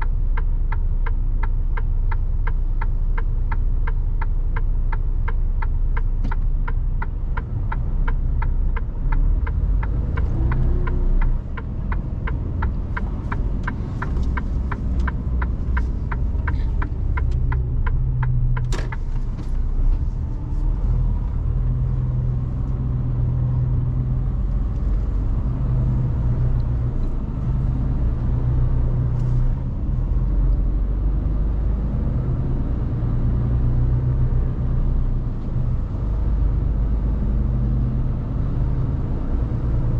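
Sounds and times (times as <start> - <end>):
turn indicator ticking: 0.0 - 20.6, 21.2 - 31.4
truck diesel engine rumbling: 0.0 - 39.9.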